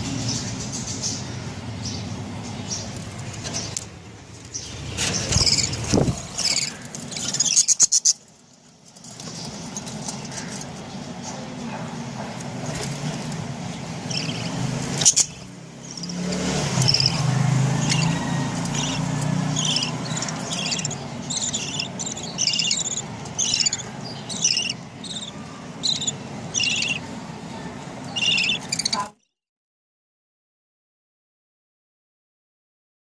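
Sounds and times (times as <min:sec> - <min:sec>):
steady low hum: 0:00.0 - 0:29.1
budgerigars chirping: 0:04.5 - 0:08.3, 0:09.2 - 0:29.1.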